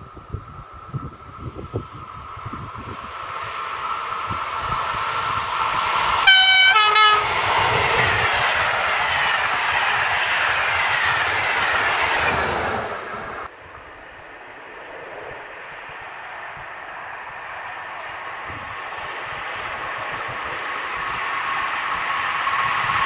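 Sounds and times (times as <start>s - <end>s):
train rushing past: 0.8s - 13.5s, 14.4s - 23.0s
train horn notes: 6.2s - 8.2s.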